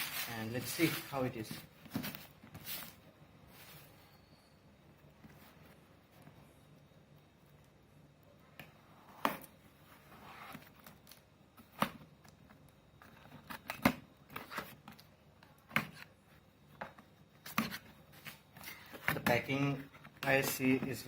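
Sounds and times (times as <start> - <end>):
soft cardboard rustling: 0.0 - 4.2.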